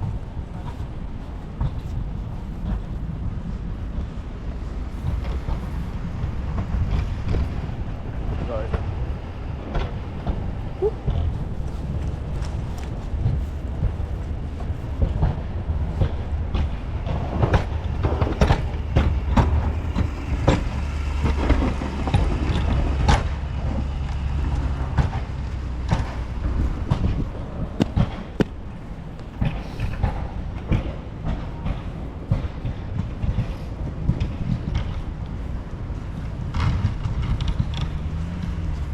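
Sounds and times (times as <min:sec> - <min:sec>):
low rumble: 0:00.0 - 0:38.9
footsteps in snow: 0:09.0 - 0:21.3, 0:24.3 - 0:30.6.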